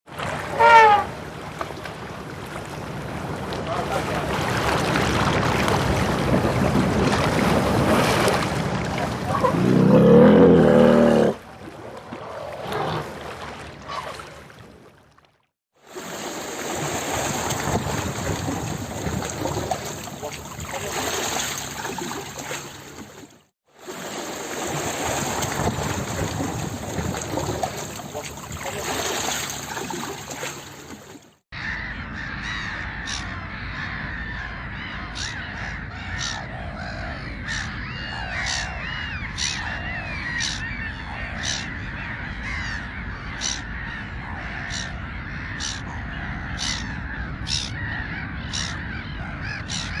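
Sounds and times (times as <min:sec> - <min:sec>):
flock of birds calling: 0:31.6 - 0:50.0.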